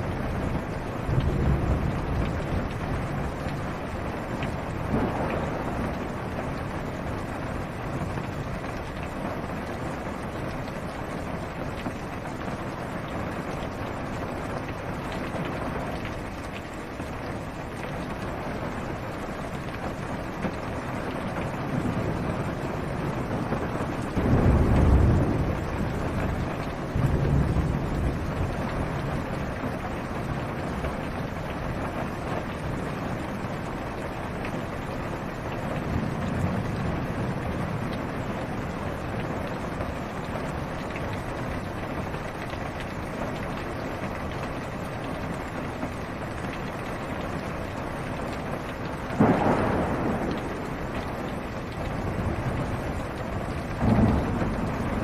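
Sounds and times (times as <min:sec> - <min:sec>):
rain on a car roof: 0:00.0 - 0:55.0
low rumbles of thunder: 0:00.1 - 0:10.3, 0:21.1 - 0:42.1, 0:48.9 - 0:55.0.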